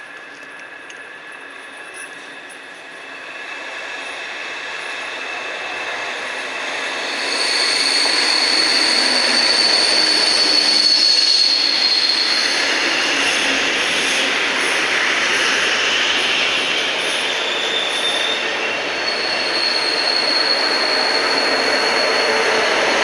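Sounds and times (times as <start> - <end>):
train arriving: 0.0 - 23.0
high metallic wheel squeal: 6.9 - 14.2, 16.3 - 23.0.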